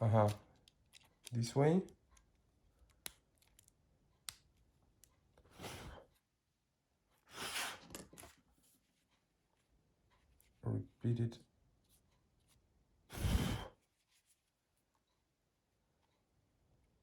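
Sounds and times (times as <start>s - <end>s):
plastic phone parts clicking: 0.2s - 4.4s.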